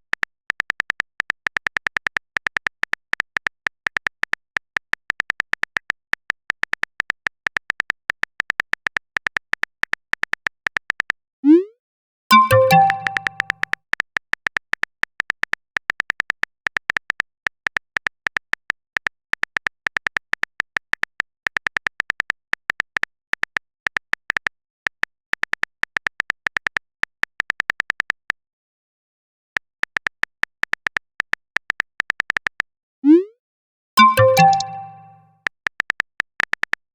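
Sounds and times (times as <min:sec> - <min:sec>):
chat notification chime: 0:12.3 - 0:13.6, 0:34.0 - 0:35.2
phone keyboard typing clicks: 0:12.3 - 0:13.7, 0:34.0 - 0:35.2.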